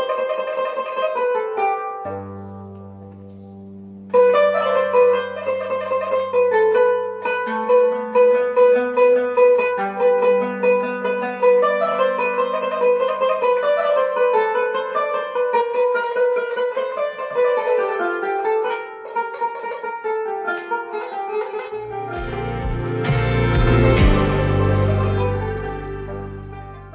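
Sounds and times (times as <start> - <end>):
string instrument solo melody: 0.0 - 26.9
deeper fuller music: 21.9 - 26.9.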